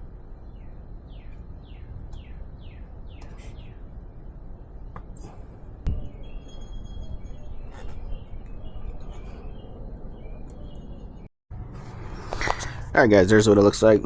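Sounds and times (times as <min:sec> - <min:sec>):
low outdoor rumble: 0:00.0 - 0:14.0
bird whistling song: 0:05.9 - 0:11.0.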